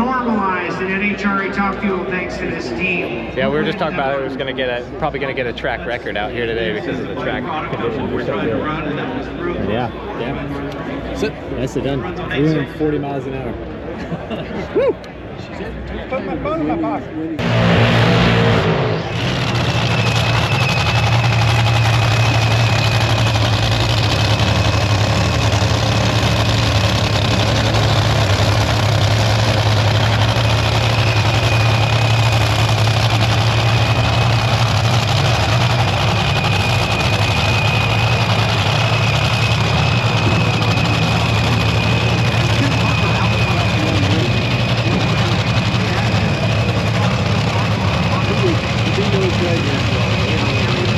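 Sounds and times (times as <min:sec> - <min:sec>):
engine droning: 0:16.6 - 0:50.9.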